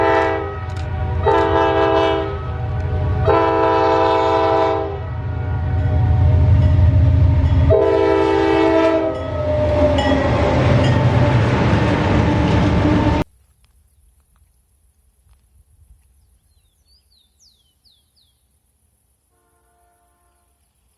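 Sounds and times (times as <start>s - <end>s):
train horn blasts: 0.0s - 13.2s, 19.3s - 20.6s
locomotive engines and wheels rumbling: 0.0s - 13.3s.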